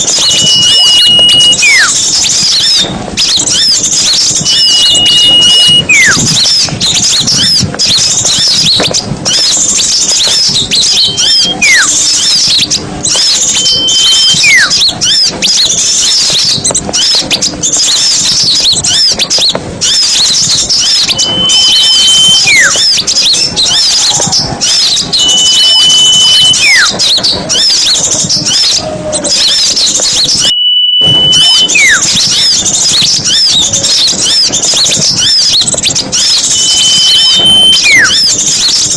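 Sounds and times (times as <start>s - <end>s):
songbirds chirping: 0.0s - 38.9s
whistle sliding down in pitch: 0.2s - 2.0s, 4.4s - 6.3s, 20.8s - 22.8s, 25.2s - 26.9s, 30.3s - 32.6s, 36.2s - 38.3s.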